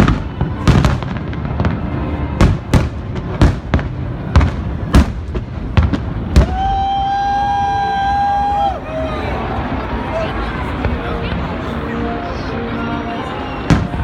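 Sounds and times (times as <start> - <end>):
fireworks booming: 0.0 - 7.1, 13.7 - 14.0.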